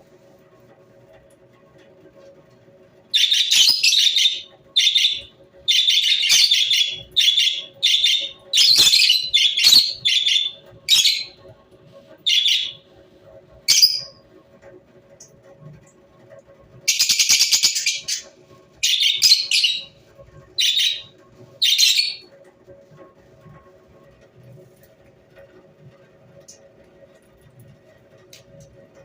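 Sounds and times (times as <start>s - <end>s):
parrot harsh chirping calls: 3.2s - 11.4s, 12.3s - 12.8s, 18.8s - 19.9s, 20.6s - 22.2s.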